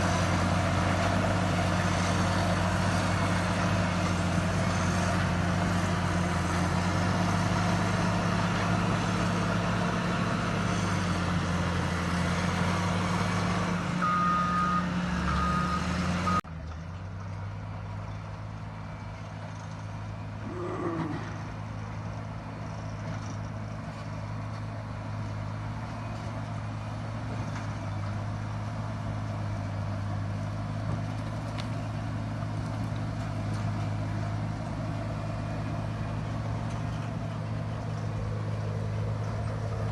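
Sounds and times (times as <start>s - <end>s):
diesel engine running: 0.0s - 39.9s
reverse alarm beeping: 14.0s - 16.4s.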